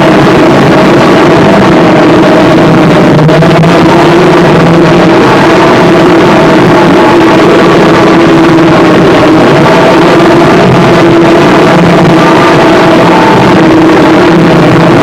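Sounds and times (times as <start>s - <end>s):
harsh distorted noise music: 0.0s - 15.0s
low droning tones: 0.0s - 15.0s.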